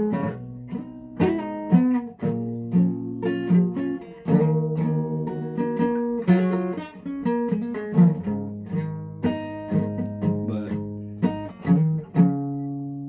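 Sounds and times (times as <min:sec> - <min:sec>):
guitar strummed chords: 0:00.0 - 0:13.0.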